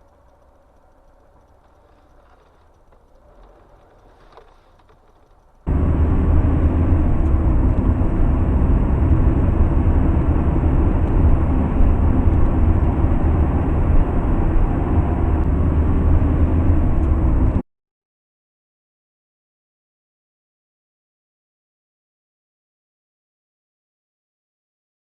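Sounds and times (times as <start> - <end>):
vehicle rumbling in motion: 0.0 - 17.6.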